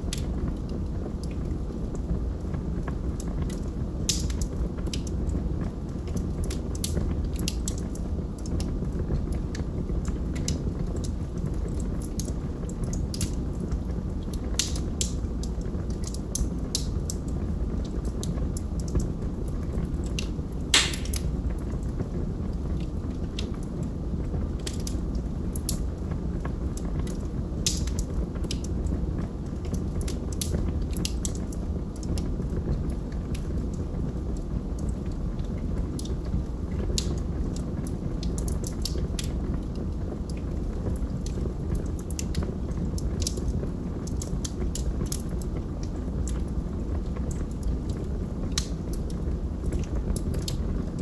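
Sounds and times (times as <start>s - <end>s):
fire crackling and popping: 0.0s - 51.0s
low rush of flame: 0.0s - 51.0s.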